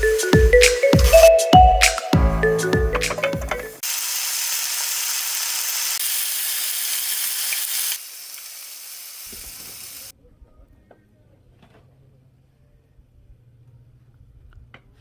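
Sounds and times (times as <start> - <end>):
meat sizzling on a grill: 3.8 - 10.1.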